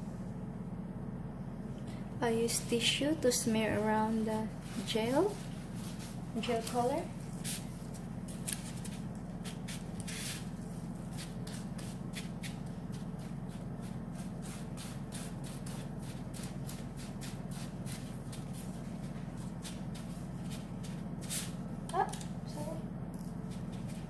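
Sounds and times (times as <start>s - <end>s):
steady low hum: 0.0s - 24.0s
tissue rubbing on fondant: 4.2s - 21.7s, 23.4s - 24.0s.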